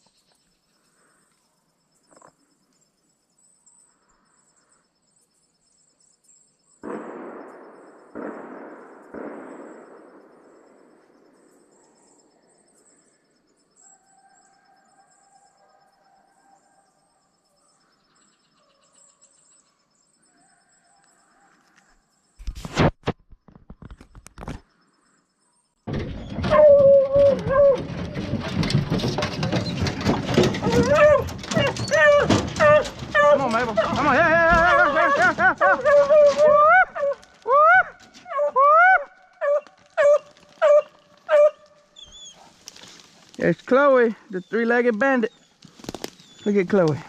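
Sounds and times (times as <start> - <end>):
echoing gunshots: 6.8 - 11.4
hounds howling: 26.3 - 42.6.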